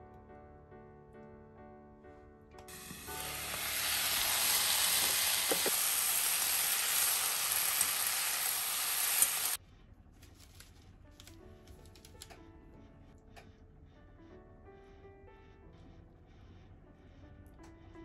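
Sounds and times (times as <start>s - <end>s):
soft background music: 0.0s - 5.0s, 9.6s - 18.0s
cabbage sizzling in a pan: 2.7s - 9.6s.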